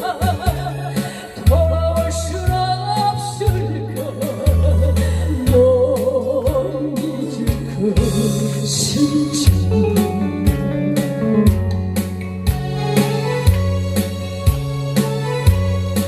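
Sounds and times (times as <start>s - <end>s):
woman singing with vibrato: 0.0s - 10.6s
loud backing track: 0.0s - 16.0s.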